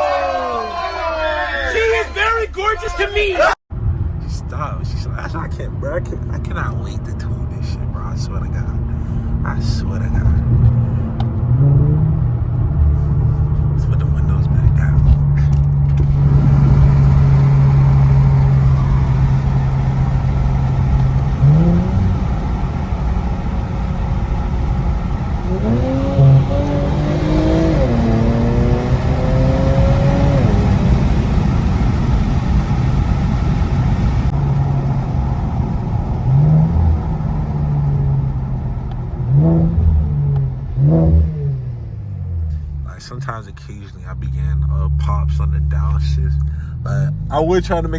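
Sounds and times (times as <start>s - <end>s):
car engine droning and revving: 3.7s - 47.9s.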